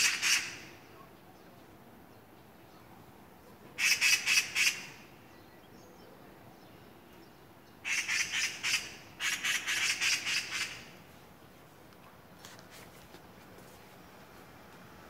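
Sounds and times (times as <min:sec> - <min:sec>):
bird calling rapid repeated notes: 0:00.0 - 0:00.7, 0:03.8 - 0:05.1, 0:07.8 - 0:11.0.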